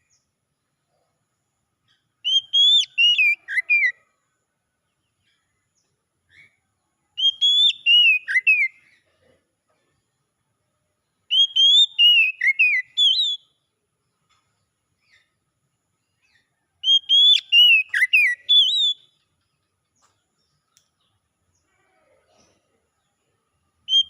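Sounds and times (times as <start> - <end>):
bird singing whistled notes: 2.2 - 4.0, 7.2 - 8.9, 11.2 - 13.7, 16.1 - 19.3, 23.8 - 24.0.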